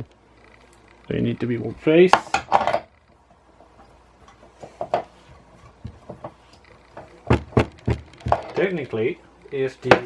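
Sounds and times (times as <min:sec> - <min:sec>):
sharp knocks: 0:07.2 - 0:08.4.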